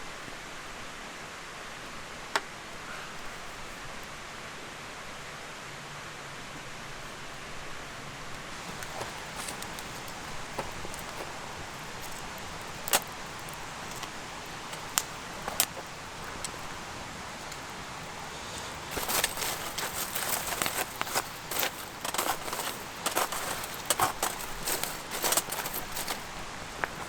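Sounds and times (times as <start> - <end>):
steady hiss: 0.0 - 27.0
campfire crackling: 8.3 - 27.0
rustling: 8.4 - 27.0
fire pops: 8.5 - 27.0.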